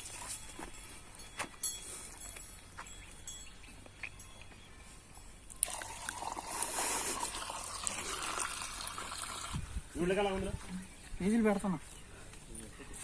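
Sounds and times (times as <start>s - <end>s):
water pouring into pipe: 5.6s - 9.7s.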